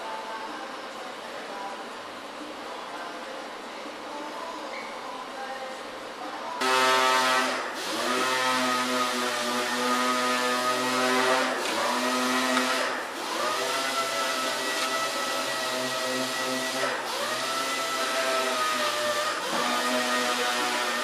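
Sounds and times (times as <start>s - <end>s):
grinding tool whining on metal: 6.6s - 21.0s.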